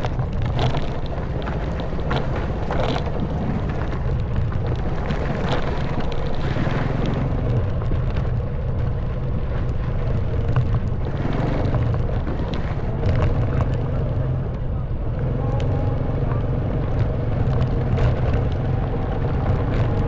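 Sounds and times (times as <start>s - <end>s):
knocks and clicks from gravel: 0.0s - 13.9s
motorcycle engine running: 0.0s - 20.0s
wind rushing over microphone: 0.0s - 20.0s.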